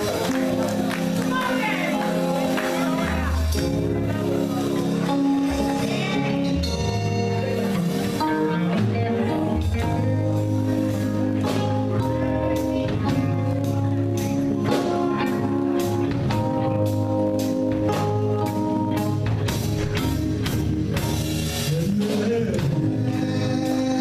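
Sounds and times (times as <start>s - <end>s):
bass line: 0.0s - 24.0s
drums: 0.0s - 24.0s
guitar: 0.0s - 24.0s.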